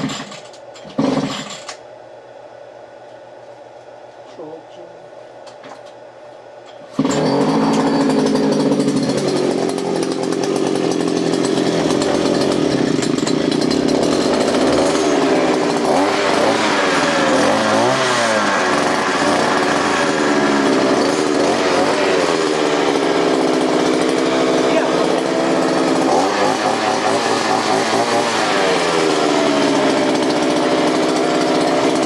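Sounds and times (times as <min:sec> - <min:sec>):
earth auger engine running: 0:06.9 - 0:32.0.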